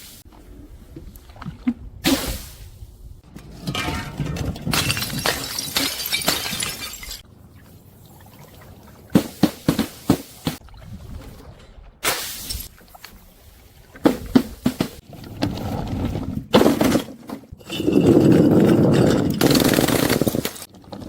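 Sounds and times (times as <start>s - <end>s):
glass bottles shattering: 3.6s - 7.2s, 17.6s - 20.7s.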